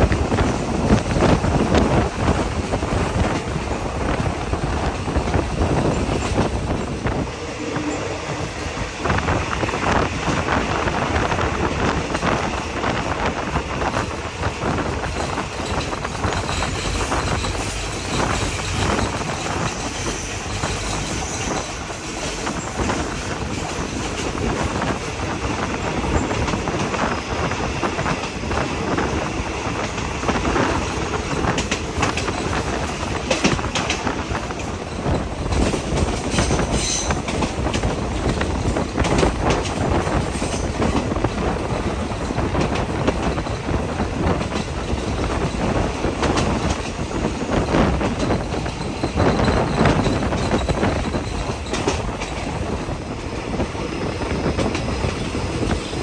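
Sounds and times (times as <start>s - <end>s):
train wheels rumbling on rail: 0.0s - 56.0s
wheels clacking over rail joints: 25.9s - 53.3s.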